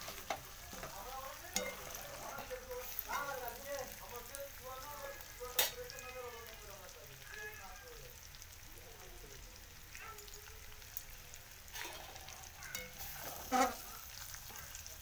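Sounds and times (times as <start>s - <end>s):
ladle stirring in a pan: 0.0s - 6.0s, 11.6s - 15.0s
gravy sizzling in a pan: 0.0s - 15.0s.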